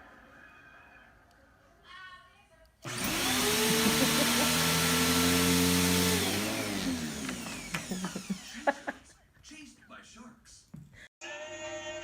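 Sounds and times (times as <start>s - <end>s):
appliance motor whining: 2.8s - 8.8s.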